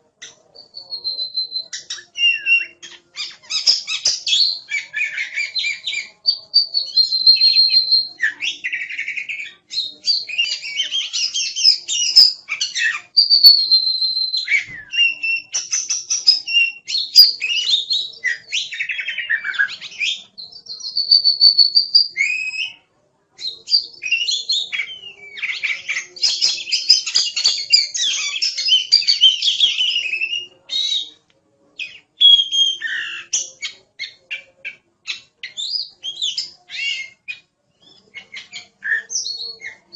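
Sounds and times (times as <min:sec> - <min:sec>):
magpie-robin singing: 0:00.2 - 0:22.8, 0:23.4 - 0:31.2, 0:31.8 - 0:39.9.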